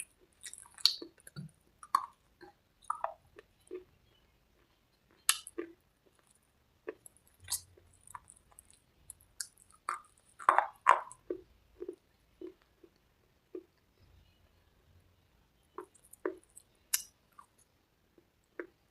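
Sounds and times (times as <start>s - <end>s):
wet mouth sounds: 0.0s - 3.9s, 5.1s - 6.3s, 6.9s - 13.8s, 15.8s - 17.6s.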